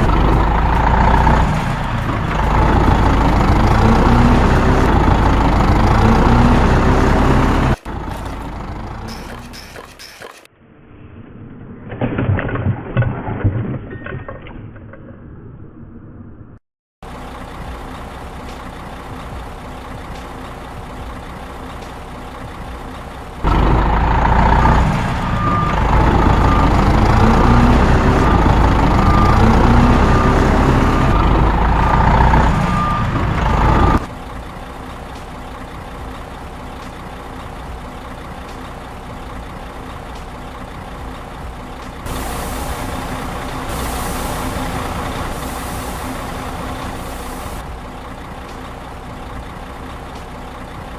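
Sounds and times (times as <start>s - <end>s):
heavy truck engine running: 0.0s - 10.5s, 17.0s - 50.9s
reversing alarm beeping: 24.6s - 34.1s, 42.1s - 47.6s
hiss: 42.1s - 47.6s.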